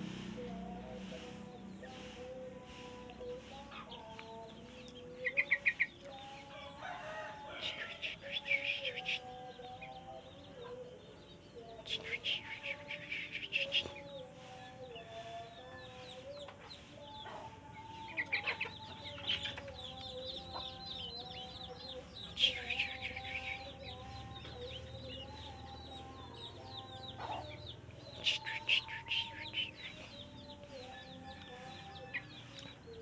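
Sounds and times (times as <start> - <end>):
softer bird calls: 0.0 - 9.8.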